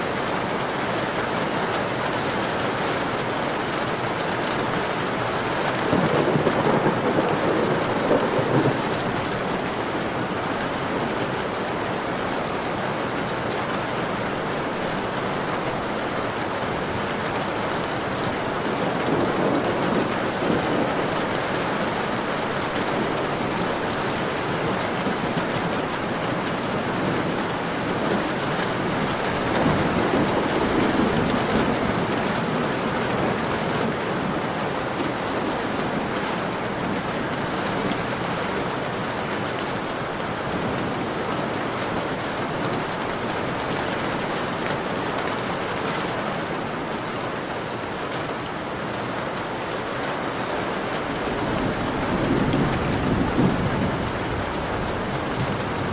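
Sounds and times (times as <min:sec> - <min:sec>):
heavy rain on a window: 0:00.0 - 0:55.9
thunder rumbling: 0:05.2 - 0:12.3, 0:15.8 - 0:38.3, 0:50.9 - 0:55.9.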